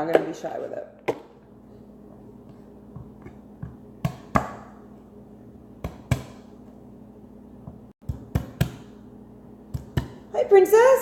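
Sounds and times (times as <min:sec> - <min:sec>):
knife chopping on cutting board: 0:03.0 - 0:04.8, 0:05.8 - 0:06.5, 0:08.0 - 0:09.0, 0:09.7 - 0:10.2.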